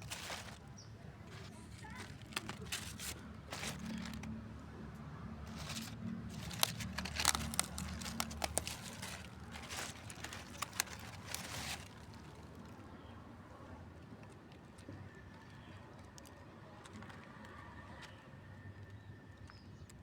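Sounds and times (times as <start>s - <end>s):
plant stems snapping: 0.0s - 0.6s, 1.3s - 4.3s, 5.4s - 12.3s
leaves rustling: 0.0s - 4.4s, 5.4s - 12.6s.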